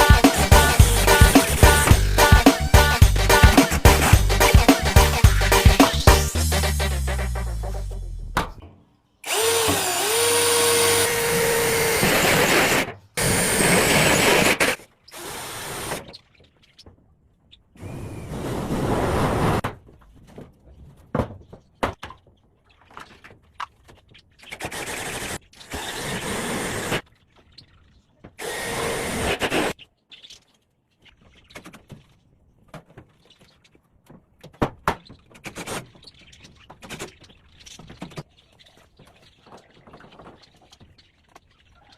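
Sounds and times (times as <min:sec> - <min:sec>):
power drill bursts: 0:09.2 - 0:16.1, 0:24.7 - 0:27.0, 0:28.4 - 0:29.7.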